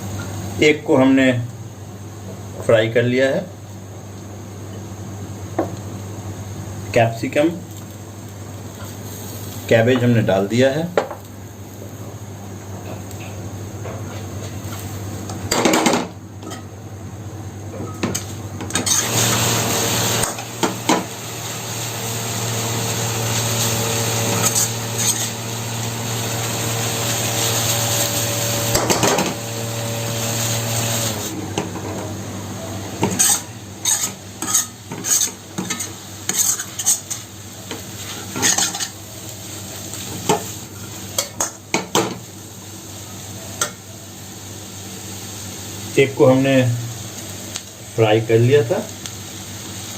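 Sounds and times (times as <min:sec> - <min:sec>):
food sizzling in pan: 0:07.6 - 0:49.9
metal spatula scraping pan: 0:23.7 - 0:25.4, 0:33.1 - 0:37.2.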